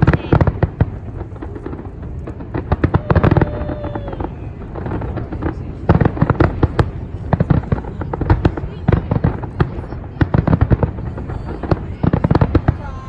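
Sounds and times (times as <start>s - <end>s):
fireworks cracks and bangs: 0.0s - 13.0s.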